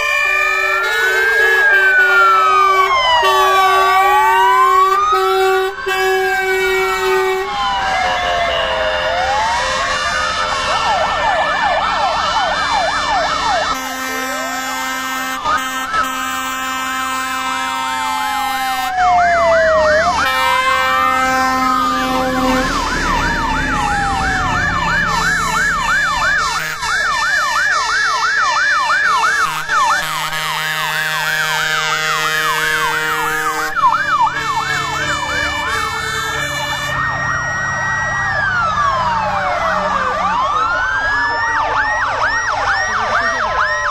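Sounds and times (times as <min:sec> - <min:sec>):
emergency vehicle sirens: 0:00.0 - 0:43.9
two-tone horn notes: 0:04.8 - 0:07.5, 0:13.7 - 0:17.9, 0:20.2 - 0:23.3, 0:26.4 - 0:27.2, 0:29.4 - 0:37.0.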